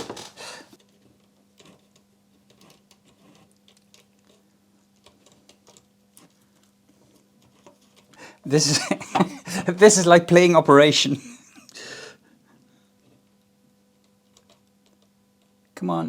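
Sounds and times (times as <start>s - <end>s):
faint steady hum: 8.0s - 14.1s.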